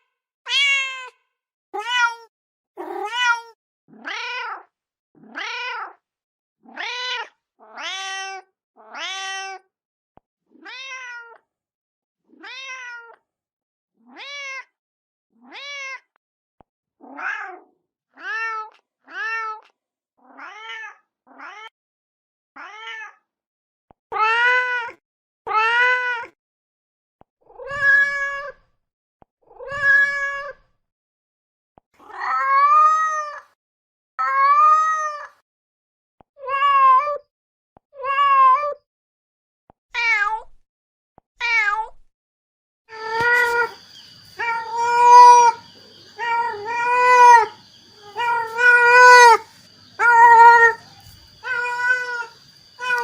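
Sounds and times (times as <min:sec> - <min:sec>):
cat meowing: 0:00.5 - 0:01.1, 0:01.8 - 0:04.6, 0:05.2 - 0:06.0, 0:06.7 - 0:09.6, 0:10.6 - 0:11.4, 0:12.4 - 0:13.2, 0:14.1 - 0:14.7, 0:15.4 - 0:16.0, 0:17.0 - 0:19.6, 0:20.3 - 0:21.7, 0:22.6 - 0:23.2, 0:27.6 - 0:28.6, 0:29.6 - 0:30.6, 0:34.2 - 0:35.4, 0:38.0 - 0:38.8, 0:40.0 - 0:40.6, 0:41.4 - 0:42.0, 0:42.9 - 0:53.0.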